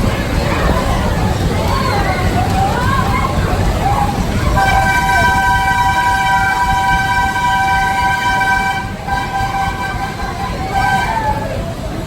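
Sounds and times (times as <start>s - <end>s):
horn blast: 4.5s - 11.8s.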